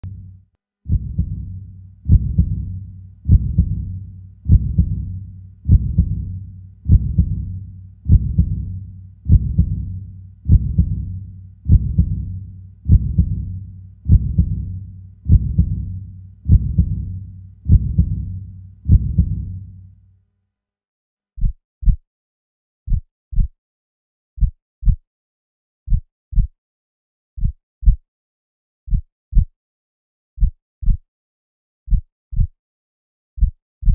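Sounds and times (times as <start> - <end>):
heartbeat lub-dub: 0.9 - 19.8.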